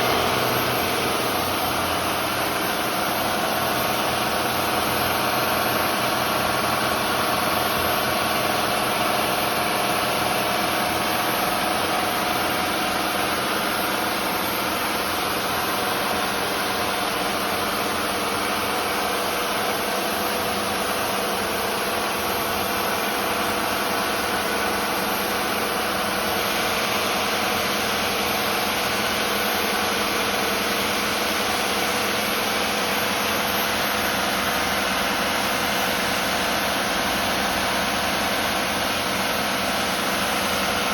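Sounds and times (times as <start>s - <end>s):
boat diesel engines droning: 0.0s - 5.4s.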